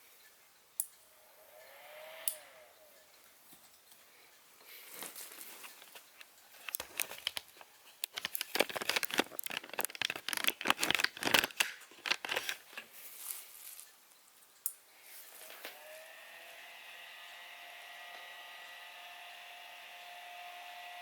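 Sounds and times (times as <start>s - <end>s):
packaging crinkling: 4.9s - 14.0s.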